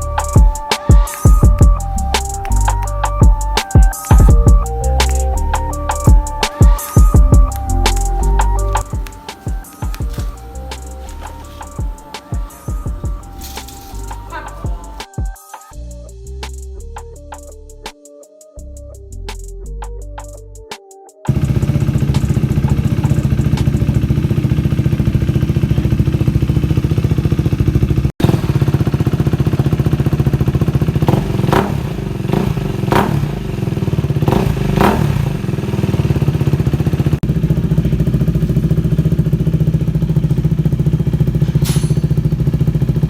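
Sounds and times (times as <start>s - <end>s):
motorcycle engine idling: 0.0s - 15.4s, 21.3s - 43.0s
motorcycle throttle blips: 7.3s - 15.0s, 21.3s - 43.0s.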